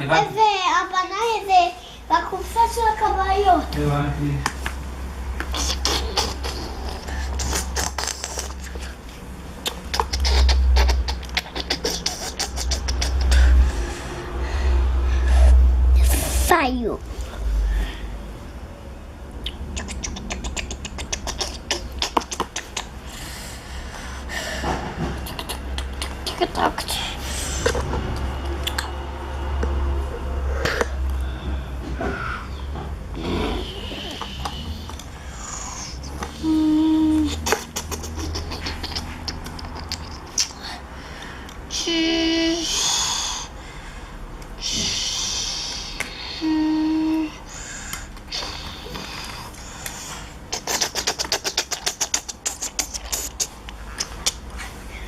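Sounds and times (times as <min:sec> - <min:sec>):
small mouth clicks: 0:05.4 - 0:09.0, 0:09.6 - 0:13.8, 0:19.4 - 0:23.1, 0:25.2 - 0:26.9, 0:28.2 - 0:28.9, 0:33.9 - 0:40.7, 0:47.9 - 0:54.7
child humming a note: 0:36.4 - 0:37.4, 0:46.3 - 0:47.4
child breathy hiss: 0:41.7 - 0:43.6, 0:44.6 - 0:50.3.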